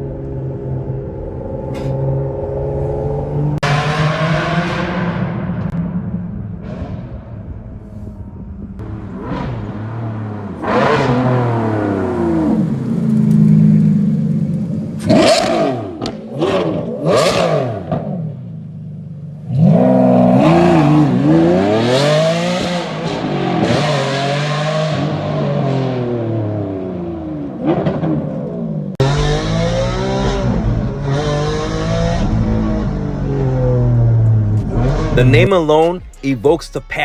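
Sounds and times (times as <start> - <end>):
sports car engine revving: 1.4 - 6.0, 8.8 - 18.3, 19.4 - 28.2, 29.0 - 35.5.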